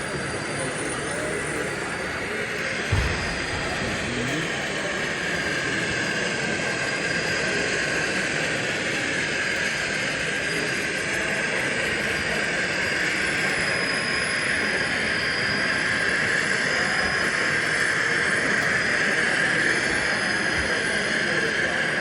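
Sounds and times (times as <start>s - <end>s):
exhibition hall background noise: 0.0s - 22.0s.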